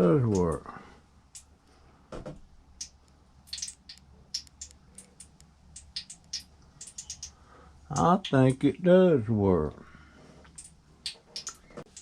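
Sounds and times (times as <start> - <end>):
light clicks and ticks: 2.8 - 8.6.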